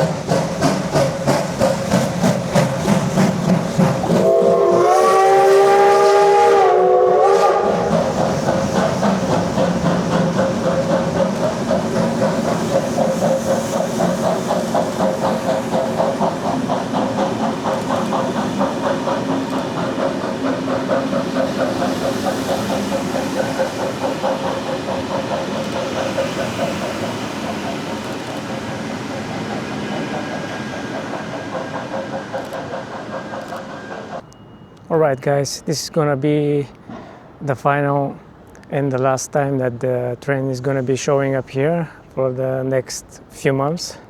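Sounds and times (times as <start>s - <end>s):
steam train rhythmic beat and hiss: 0.0s - 34.2s
steam locomotive whistle chord: 4.1s - 7.9s.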